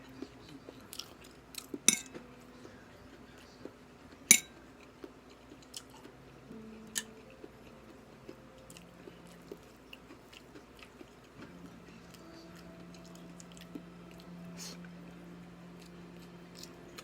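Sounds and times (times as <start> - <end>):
faint steady hum: 0.0 - 17.0
person chewing and biting food: 6.9 - 11.6, 15.8 - 17.0.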